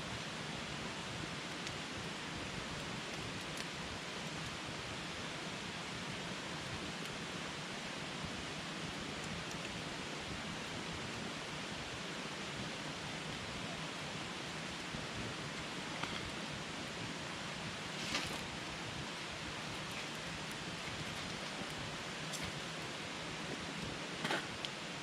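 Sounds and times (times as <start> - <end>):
campfire hissing and crackling: 0.0 - 25.0.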